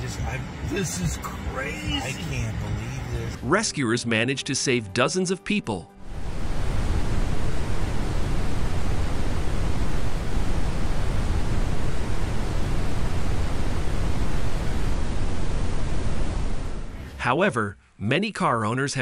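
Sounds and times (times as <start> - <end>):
heavy rain: 6.0 - 17.2.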